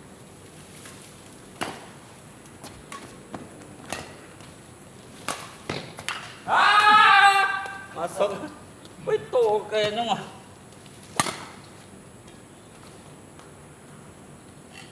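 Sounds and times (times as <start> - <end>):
racket hitting shuttlecock: 1.6 - 2.0, 3.8 - 4.2, 5.2 - 7.0, 11.1 - 11.7.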